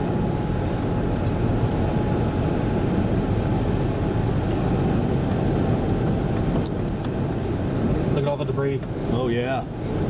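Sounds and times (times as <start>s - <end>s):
road and engine noise: 0.0s - 10.0s.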